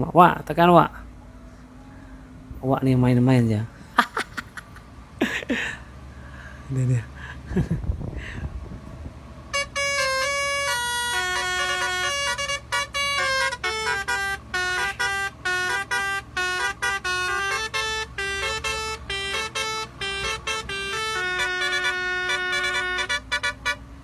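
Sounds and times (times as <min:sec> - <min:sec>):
truck low rumble: 0:00.0 - 0:24.0
truck musical horn melody: 0:09.0 - 0:24.0.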